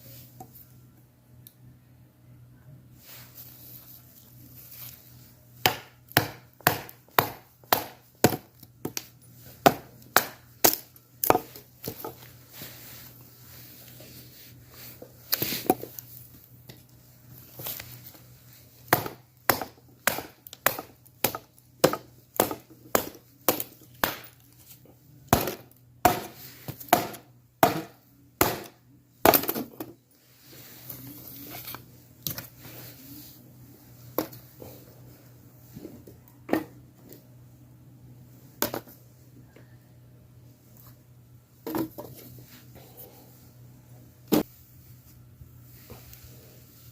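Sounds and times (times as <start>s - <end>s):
wood being chopped: 5.6s - 9.0s, 9.6s - 12.0s, 18.9s - 24.4s, 25.3s - 29.7s.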